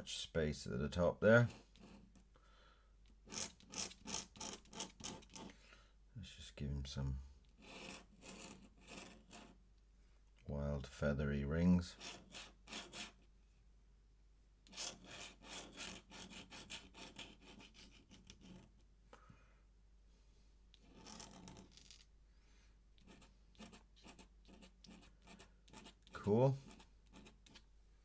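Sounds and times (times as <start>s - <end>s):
pen scratching on paper: 1.5s - 2.1s, 3.2s - 5.5s, 7.6s - 9.6s, 11.9s - 13.2s, 14.7s - 18.8s, 20.8s - 21.8s, 23.0s - 27.6s.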